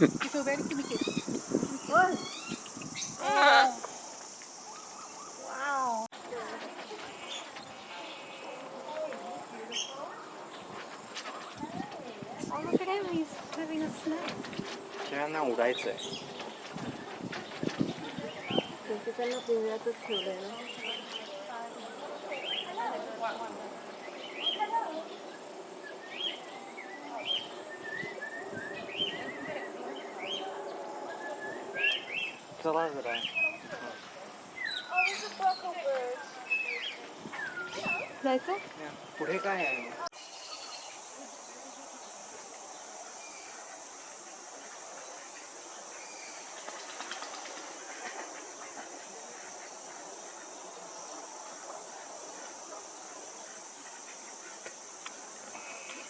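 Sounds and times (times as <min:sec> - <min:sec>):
high-pitched insect chorus: 0:00.0 - 0:06.3, 0:37.6 - 0:56.0
small birds chirping: 0:00.0 - 0:56.0.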